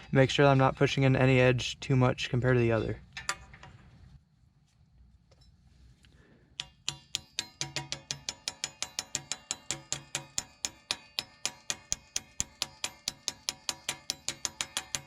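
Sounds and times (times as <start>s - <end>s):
hammer tapping metal: 6.6s - 15.0s.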